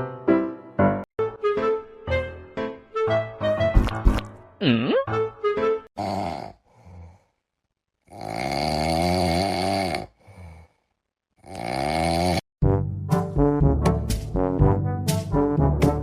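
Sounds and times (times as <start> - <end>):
person snoring: 6.0 - 7.4, 8.0 - 12.4.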